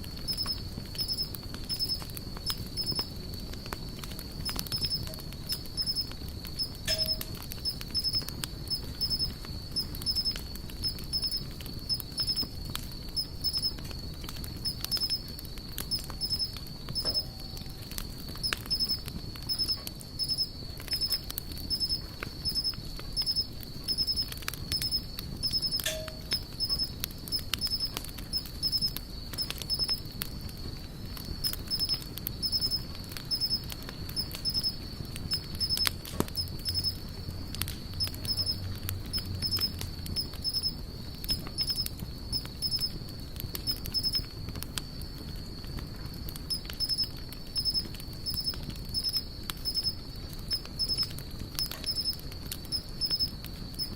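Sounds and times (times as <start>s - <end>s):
campfire crackling and popping: 0.0s - 53.9s
rapid chirping pulses: 0.2s - 3.1s, 4.3s - 13.8s, 14.6s - 17.3s, 18.4s - 30.0s, 31.4s - 37.0s, 38.0s - 42.9s, 43.6s - 44.3s, 46.5s - 53.9s
steady high-pitched tone: 6.9s - 7.3s, 25.8s - 26.4s.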